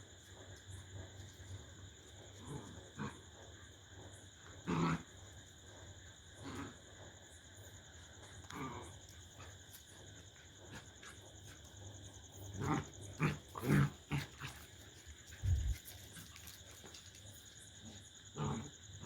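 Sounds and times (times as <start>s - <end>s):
dogs growling and snarling: 2.3s - 5.3s, 6.3s - 7.1s, 8.2s - 9.8s, 10.6s - 16.6s, 17.8s - 19.0s.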